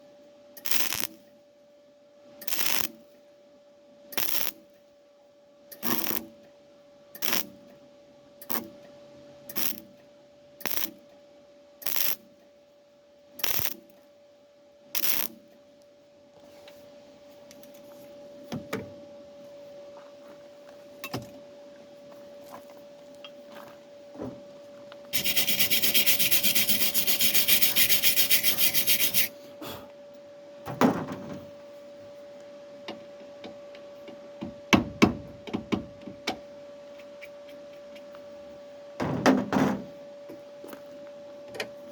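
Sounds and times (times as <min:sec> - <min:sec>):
faint steady hum: 0:00.0 - 0:41.9
mig welder welding: 0:00.6 - 0:01.3, 0:02.4 - 0:03.0, 0:04.2 - 0:04.7, 0:05.8 - 0:06.4, 0:07.2 - 0:07.6, 0:08.4 - 0:08.7, 0:09.5 - 0:10.0, 0:10.6 - 0:11.0, 0:11.8 - 0:12.3, 0:13.4 - 0:13.9, 0:15.0 - 0:15.4, 0:25.1 - 0:29.3.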